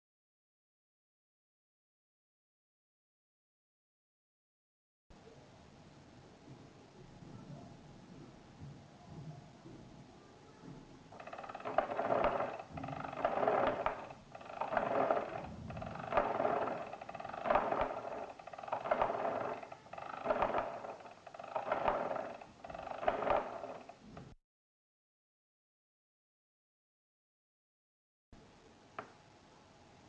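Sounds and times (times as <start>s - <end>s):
hand-cranked calculator gears whirring: 11.1s - 24.0s.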